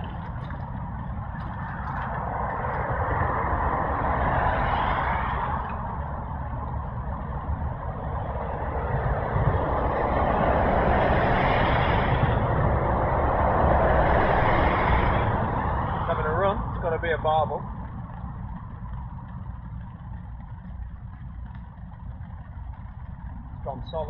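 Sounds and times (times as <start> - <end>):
road traffic rushing past: 0.0 - 24.0.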